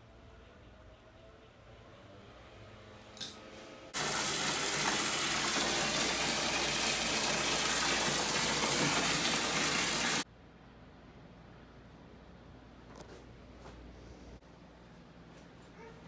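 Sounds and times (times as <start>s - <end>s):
water gushing: 4.0s - 10.2s.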